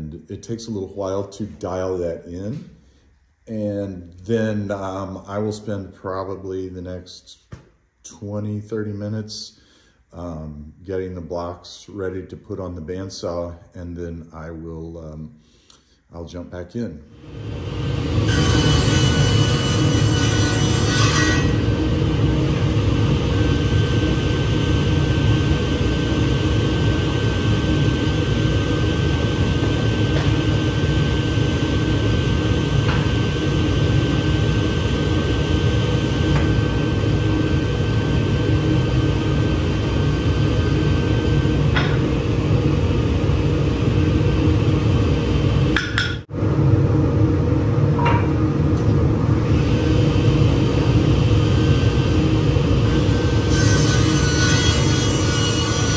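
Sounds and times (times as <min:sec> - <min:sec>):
woodworking machine humming: 0:17.2 - 0:55.9.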